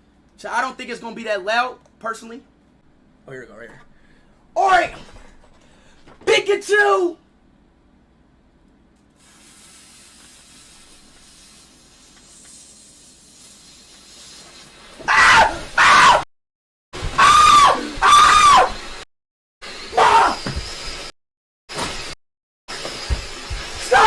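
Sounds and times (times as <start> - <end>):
firework hissing: 9.2 - 15.0
high-pitched screams: 15.0 - 16.2, 17.1 - 18.8, 19.9 - 20.5, 23.8 - 24.0.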